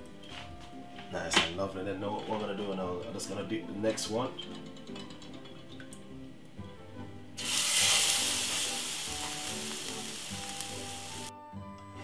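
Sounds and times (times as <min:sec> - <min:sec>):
bread sizzling in frying pan: 0:07.4 - 0:11.3.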